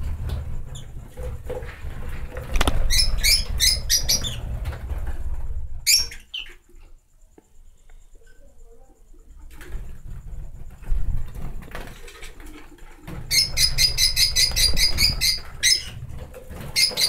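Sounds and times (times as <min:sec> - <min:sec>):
microphone handling rumble and knocks: 0:00.0 - 0:03.7
small birds squeaky chirps: 0:02.5 - 0:04.6, 0:05.8 - 0:06.6, 0:13.3 - 0:17.0.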